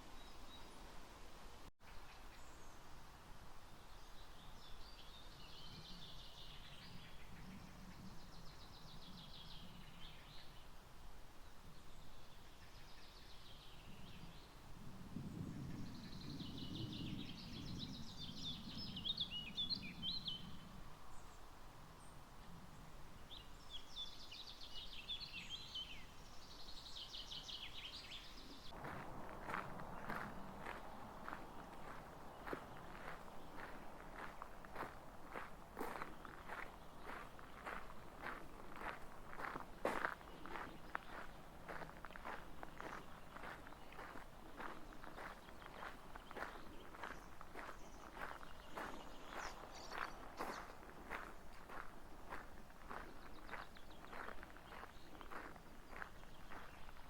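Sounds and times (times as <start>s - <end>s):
songbirds trilling faintly: 1.8s - 57.0s
footsteps: 28.7s - 57.0s.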